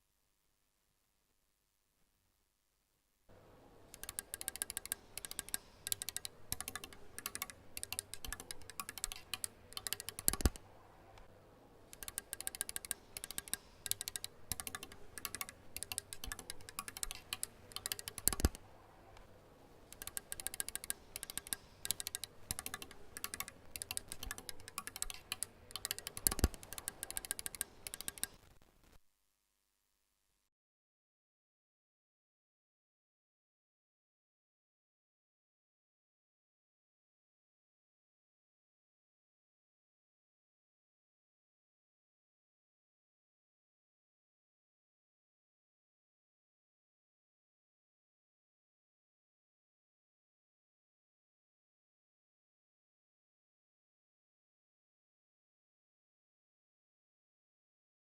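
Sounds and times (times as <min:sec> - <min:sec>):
fast typing on a keyboard: 0:04.0 - 0:10.6, 0:12.0 - 0:18.6, 0:20.0 - 0:28.4.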